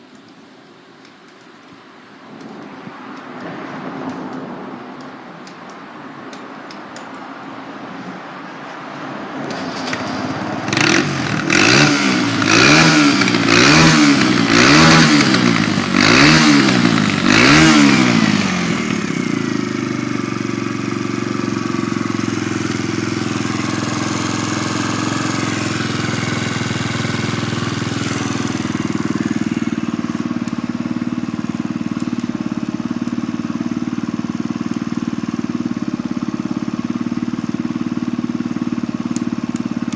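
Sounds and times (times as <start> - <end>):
motorcycle engine revving and idling: 9.3 - 39.9.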